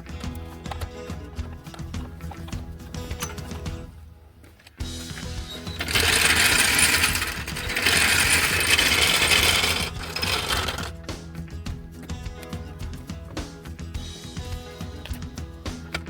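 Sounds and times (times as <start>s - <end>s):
background music: 0.0s - 16.0s
harsh metalworking noise: 5.0s - 11.1s.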